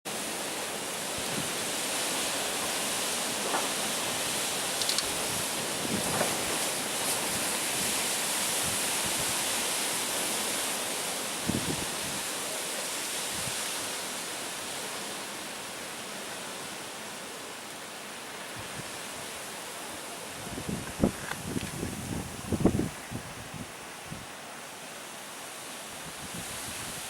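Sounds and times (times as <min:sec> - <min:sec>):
wind gusts buffeting microphone: 0:01.2 - 0:09.6, 0:11.4 - 0:12.3, 0:20.2 - 0:24.4, 0:25.9 - 0:27.0
strong wind rushing: 0:20.4 - 0:24.3.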